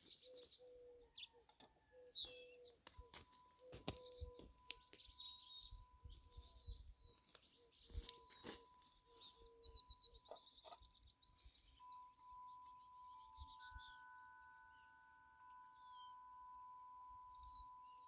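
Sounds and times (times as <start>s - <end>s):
bird trill: 0.0s - 18.0s
songbirds chirping: 0.0s - 18.0s
wind chime ringing: 11.7s - 18.0s.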